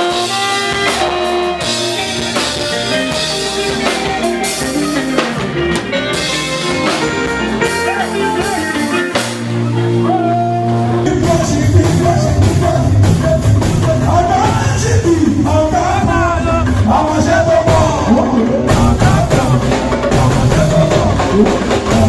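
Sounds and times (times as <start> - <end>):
person singing a melody: 0.0 - 13.4
percussion: 0.0 - 15.0.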